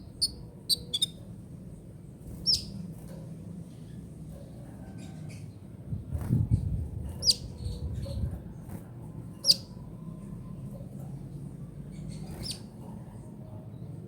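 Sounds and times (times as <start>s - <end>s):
bird chirping: 0.0s - 1.2s, 2.3s - 2.8s, 7.2s - 8.3s, 9.4s - 9.9s, 11.8s - 12.8s.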